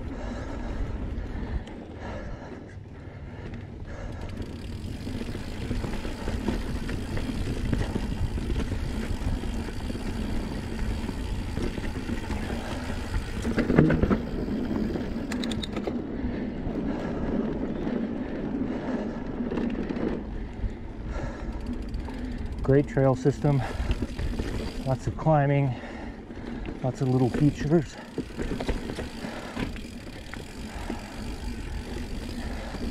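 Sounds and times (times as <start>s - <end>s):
bike rattling: 0.0s - 32.9s
bike jolt: 3.9s - 16.1s, 23.3s - 25.1s, 25.9s - 32.9s
tyres rumbling on dirt: 4.4s - 15.2s, 26.5s - 32.9s.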